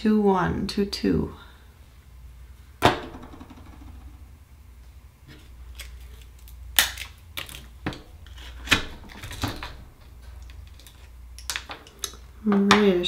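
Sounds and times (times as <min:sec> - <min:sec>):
oyster shell cracking with tools: 0:05.7 - 0:12.2.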